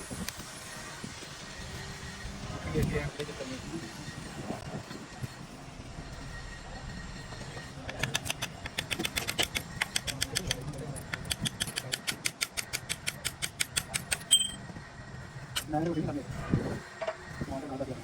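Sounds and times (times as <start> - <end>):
rapid metallic tapping: 7.9 - 14.6
ringing metal clink: 14.2 - 14.6.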